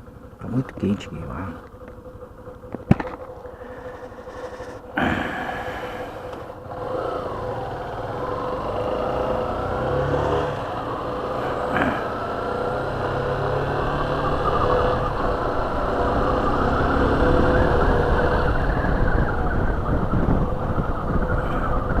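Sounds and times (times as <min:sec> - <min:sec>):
motorcycle engine accelerating: 0:00.0 - 0:22.0
road and wind noise: 0:00.0 - 0:22.0.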